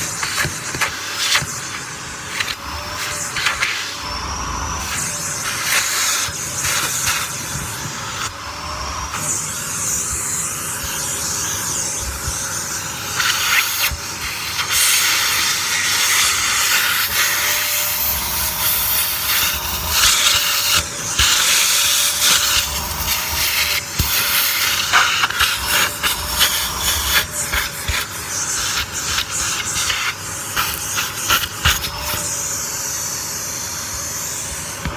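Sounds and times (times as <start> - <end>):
vacuum cleaner suction hiss: 0.0 - 34.9
motor whine: 2.0 - 14.2.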